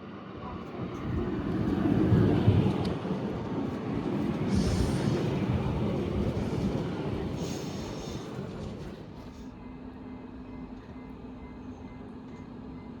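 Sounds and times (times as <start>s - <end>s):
train wheels rumbling: 1.5s - 9.4s.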